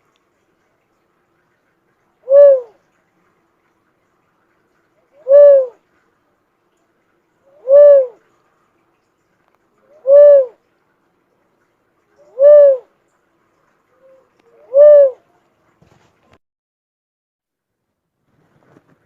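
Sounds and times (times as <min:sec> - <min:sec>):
bird hooting call: 0:02.2 - 0:02.8, 0:05.1 - 0:05.8, 0:07.5 - 0:08.2, 0:09.9 - 0:10.6, 0:12.2 - 0:12.9, 0:14.0 - 0:15.3.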